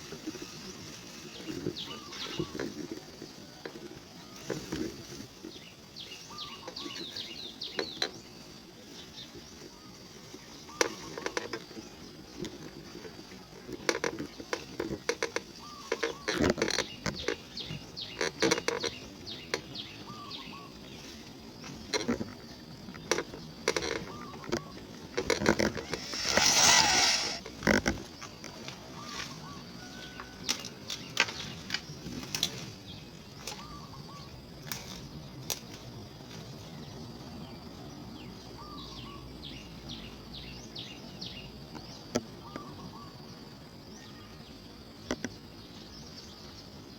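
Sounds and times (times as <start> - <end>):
rustling: 0.0 - 19.2, 20.8 - 33.7
birds chirping: 0.2 - 3.4, 5.4 - 12.5, 15.5 - 27.4.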